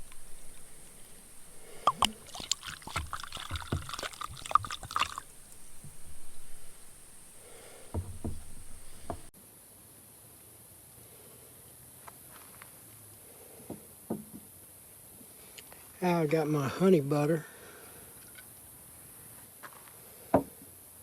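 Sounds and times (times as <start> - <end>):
pot and bowl clinking: 0.0 - 9.3
soup sloshing and pouring: 0.0 - 9.3.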